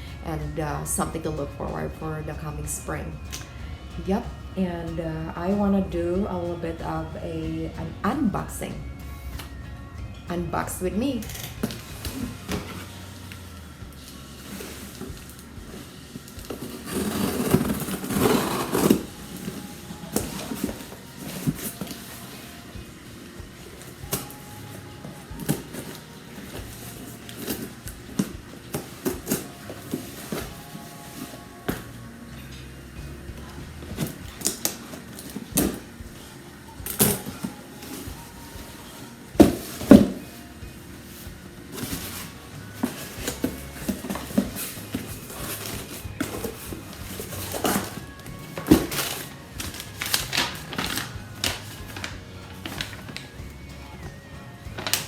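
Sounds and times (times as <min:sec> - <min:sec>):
background music: 0:00.0 - 0:55.0
paper crinkling: 0:11.3 - 0:32.7, 0:33.4 - 0:53.4, 0:54.8 - 0:55.0
cardboard box being opened: 0:13.9 - 0:22.7, 0:23.7 - 0:32.0, 0:41.0 - 0:53.4.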